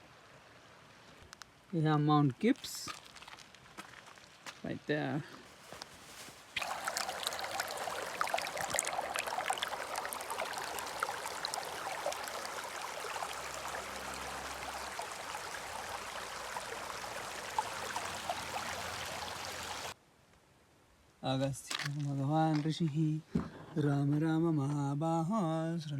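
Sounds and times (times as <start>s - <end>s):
running water rushing: 6.6s - 20.0s.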